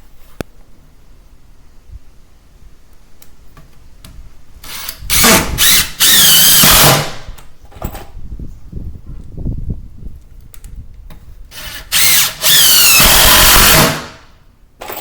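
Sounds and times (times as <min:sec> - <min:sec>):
power drill whining: 0:04.6 - 0:07.3, 0:11.5 - 0:14.2.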